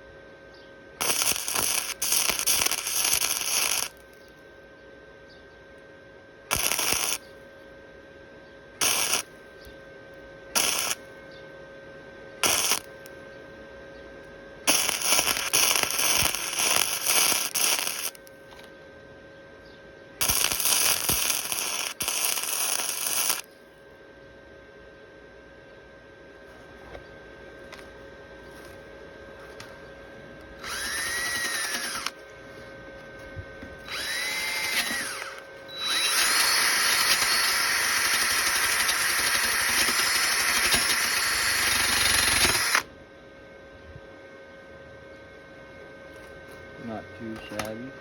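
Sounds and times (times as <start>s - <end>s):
steady welder hum: 0.0s - 48.0s
welder arc crackling: 1.0s - 4.2s, 6.5s - 7.3s, 8.8s - 9.3s, 10.6s - 11.1s, 12.4s - 13.2s, 14.7s - 18.7s, 20.2s - 23.5s, 30.6s - 32.2s, 33.8s - 42.9s.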